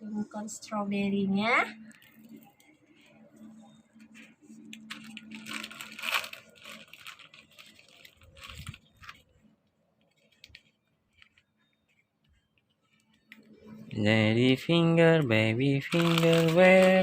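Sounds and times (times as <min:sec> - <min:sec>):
wrapper rustling and tearing: 0:04.7 - 0:09.3, 0:10.0 - 0:11.4, 0:15.8 - 0:17.0.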